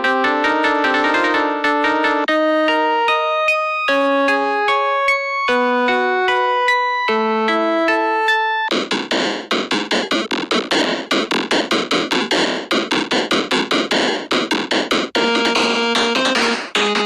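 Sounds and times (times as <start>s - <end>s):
held electronic synth notes: 7.1s - 17.0s
noisy percussive synth hits: 8.7s - 17.0s.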